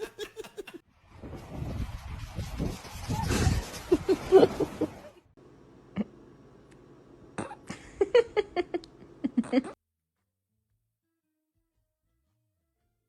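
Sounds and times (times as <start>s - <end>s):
faint steady hum: 5.2s - 9.8s.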